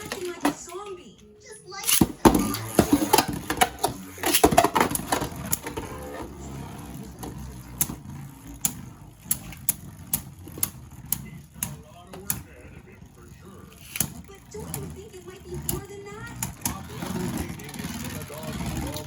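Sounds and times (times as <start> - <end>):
voices: 0.0 - 7.8, 10.6 - 19.0.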